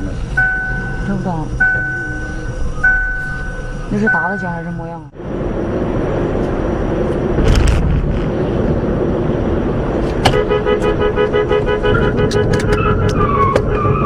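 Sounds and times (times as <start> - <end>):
traffic noise: 0.0 - 14.0
car horn sounding: 10.2 - 14.0.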